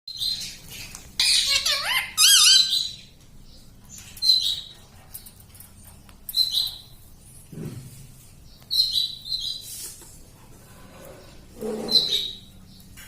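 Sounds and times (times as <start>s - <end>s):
parrot squawking calls: 1.2s - 3.0s, 11.6s - 12.5s.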